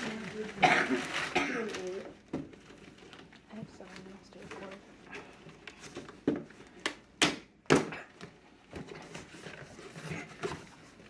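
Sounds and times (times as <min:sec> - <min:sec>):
rustling: 0:08.6 - 0:11.0.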